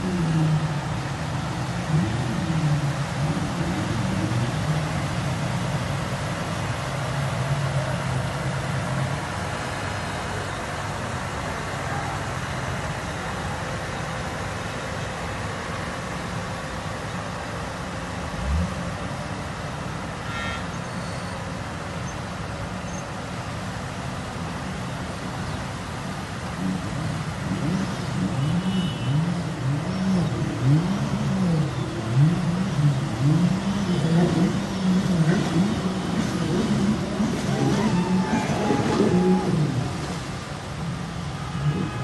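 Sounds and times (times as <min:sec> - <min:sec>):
steady rain: 0:00.0 - 0:20.2, 0:29.4 - 0:42.0
road traffic: 0:00.0 - 0:42.0.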